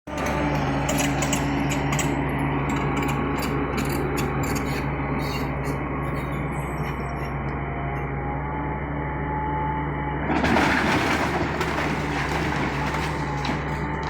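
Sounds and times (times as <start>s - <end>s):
excavator diesel engine running: 0.1s - 14.0s
wood cracking and scraping: 10.3s - 14.0s.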